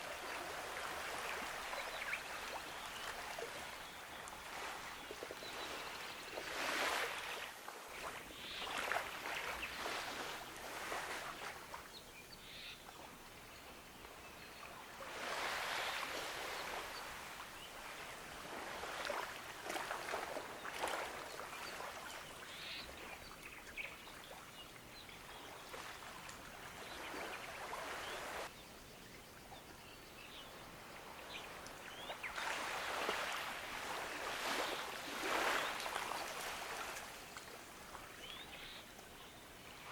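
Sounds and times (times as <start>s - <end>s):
ocean waves washing onto beach: 15.0s - 22.3s, 30.8s - 38.0s.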